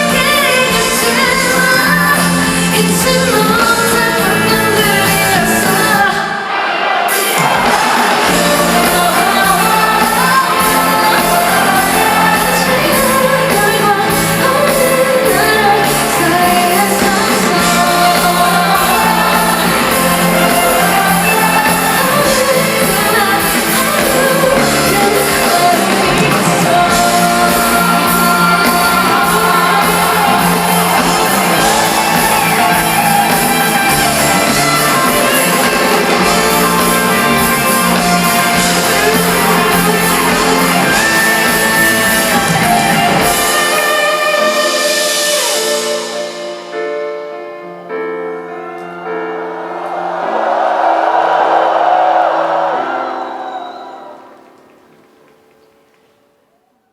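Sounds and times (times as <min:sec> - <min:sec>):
pop-rock band with singing: 0:00.0 - 0:46.4
audience shouting: 0:05.6 - 0:12.8, 0:24.0 - 0:43.1, 0:49.4 - 0:54.6.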